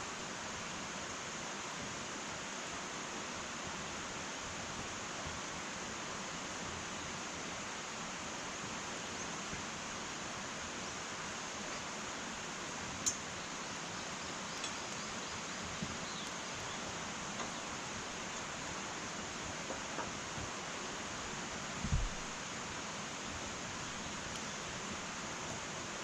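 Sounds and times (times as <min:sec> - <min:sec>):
wood fire crackling: 0:14.5 - 0:22.4.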